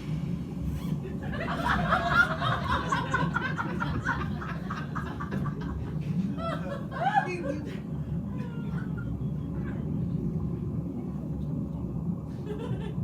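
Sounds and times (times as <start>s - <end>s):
audience laughing: 0.9s - 9.9s, 12.3s - 13.0s.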